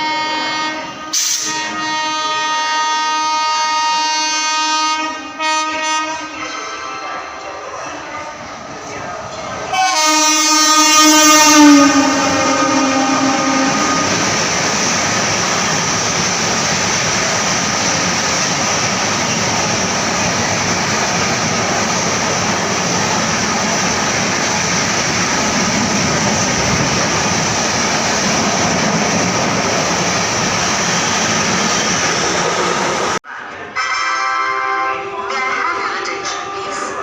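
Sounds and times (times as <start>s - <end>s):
train horn: 0.0s - 7.0s, 9.7s - 14.3s, 33.8s - 37.0s
train wheels rushing on rails: 7.5s - 33.2s.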